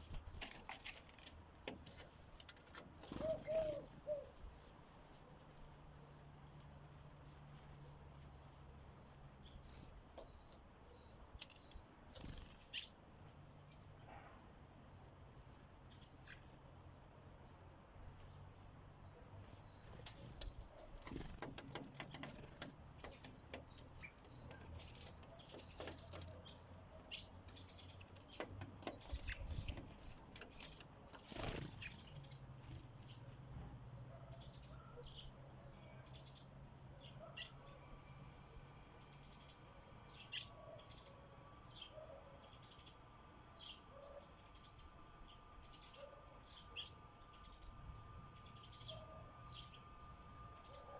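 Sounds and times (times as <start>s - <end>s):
wing flutters: 0.0s - 5.8s, 11.4s - 12.8s, 19.8s - 27.0s, 27.8s - 33.2s
sparrows chirping: 0.0s - 14.1s, 14.7s - 50.9s.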